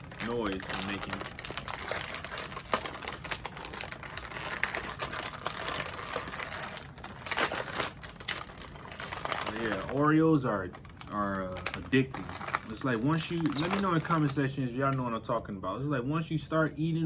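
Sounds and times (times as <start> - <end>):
crinkly plastic packaging crackling: 0.0 - 14.6.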